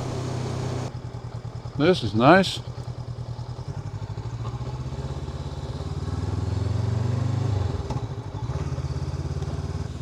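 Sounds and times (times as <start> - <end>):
motorcycle engine running: 0.0 - 6.2.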